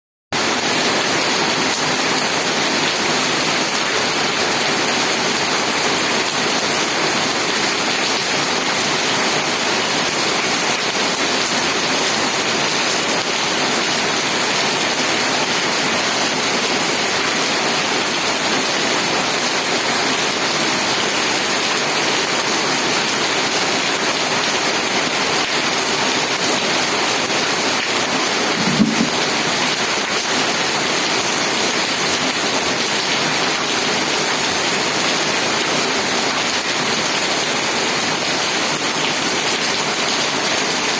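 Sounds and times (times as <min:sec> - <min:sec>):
heavy rain falling: 0:00.4 - 0:40.9
low thump: 0:28.6 - 0:29.3.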